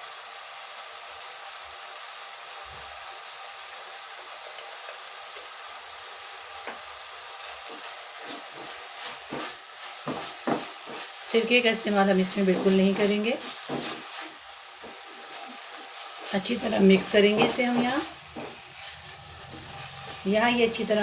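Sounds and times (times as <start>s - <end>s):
filling sizzling in frying pan: 0.0s - 21.0s
spoon scraping a pan: 7.4s - 21.0s.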